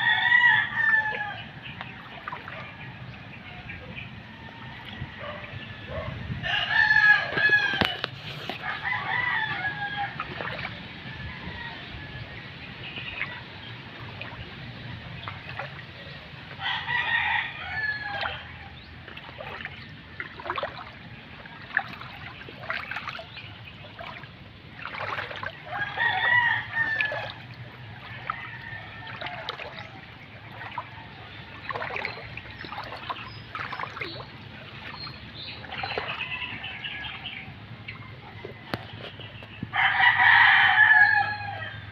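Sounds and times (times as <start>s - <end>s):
rooster crowing: 0.0s - 1.4s, 6.4s - 10.2s, 25.7s - 27.4s, 39.7s - 41.8s.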